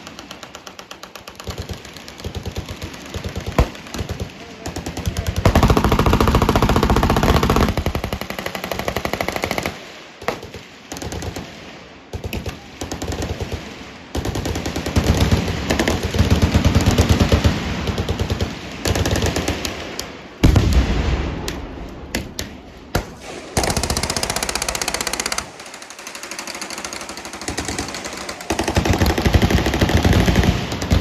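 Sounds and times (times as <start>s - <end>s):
machine-gun fire: 0.0s - 11.5s, 20.4s - 31.0s
heavy low boom: 20.4s - 22.7s.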